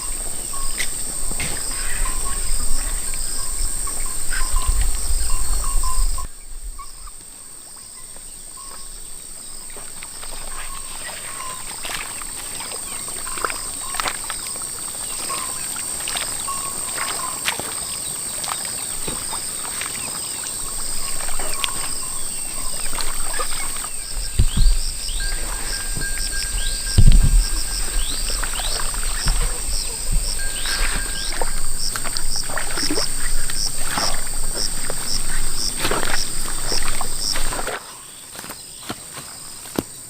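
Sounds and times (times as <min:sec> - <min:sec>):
rapid insect chirps: 0:00.0 - 0:40.0
high-pitched insect drone: 0:07.8 - 0:38.2
low thumps: 0:22.7 - 0:37.4.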